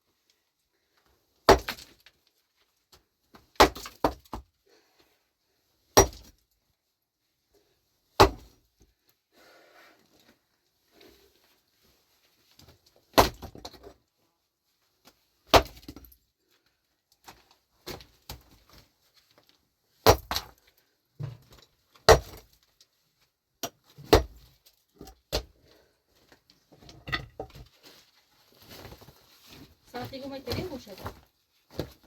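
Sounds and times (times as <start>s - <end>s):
pickaxe striking stony ground: 1.5s - 2.0s, 3.6s - 4.4s, 6.0s - 6.4s, 8.2s - 8.6s, 13.1s - 13.9s, 15.5s - 16.2s, 20.0s - 20.5s, 22.1s - 22.5s, 23.6s - 25.5s.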